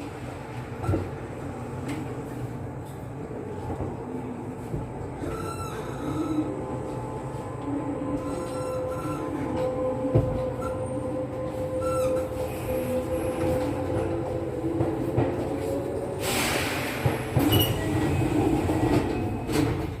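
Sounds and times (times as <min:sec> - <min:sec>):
train interior rumble: 0:00.0 - 0:20.0
compressed air hiss: 0:16.2 - 0:17.3.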